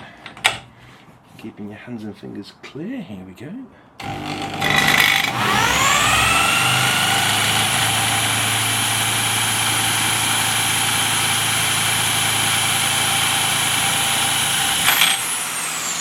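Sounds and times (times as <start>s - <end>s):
test rig motor whine: 4.0s - 16.0s.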